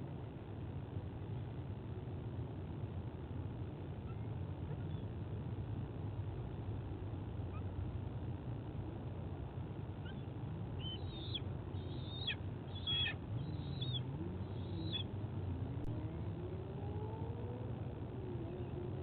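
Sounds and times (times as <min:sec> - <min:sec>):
high bird calls: 0:10.0 - 0:15.1
faint rising drone: 0:10.4 - 0:19.0.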